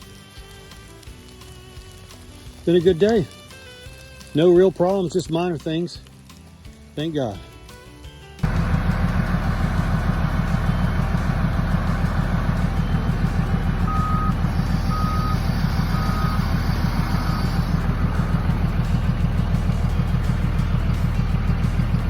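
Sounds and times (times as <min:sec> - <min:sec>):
heavy diesel engine running: 0:08.4 - 0:22.0
vehicle backup alarm beeps: 0:08.5 - 0:22.0.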